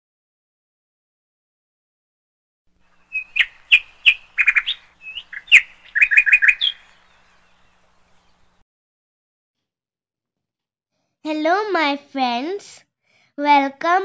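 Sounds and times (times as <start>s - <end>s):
bird chirping and trilling: 2.8s - 8.6s.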